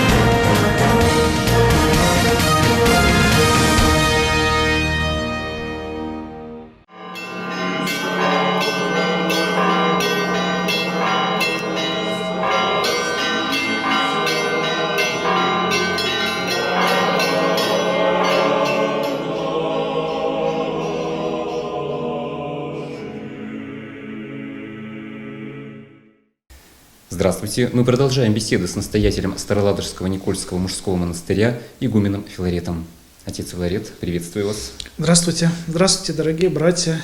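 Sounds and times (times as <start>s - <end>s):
church bells ringing a peal: 6.9s - 22.1s.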